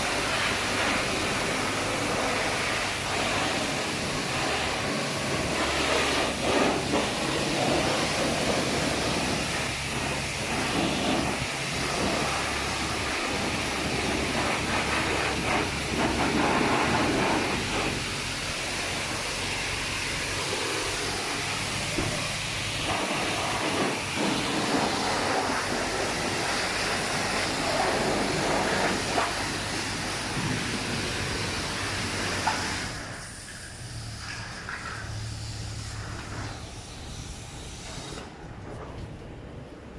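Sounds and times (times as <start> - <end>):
water spray hitting car: 0.0 - 38.3.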